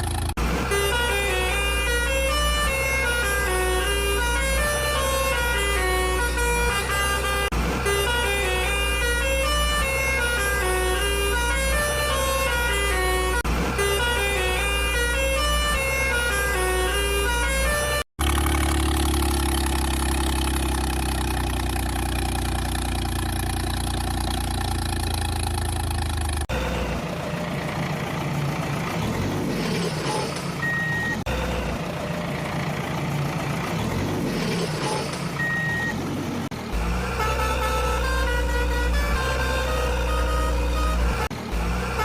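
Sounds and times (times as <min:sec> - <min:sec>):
truck engine humming: 0:00.0 - 0:42.0
short high beeps: 0:30.6 - 0:31.2, 0:34.8 - 0:36.0.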